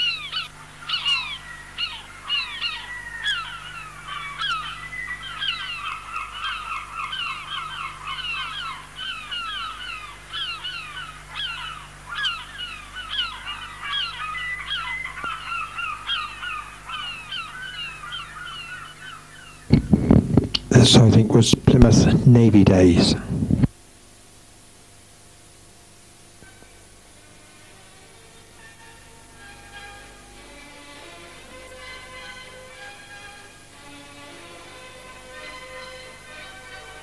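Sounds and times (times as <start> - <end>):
flock of birds calling: 0.0 - 23.7, 26.4 - 37.0.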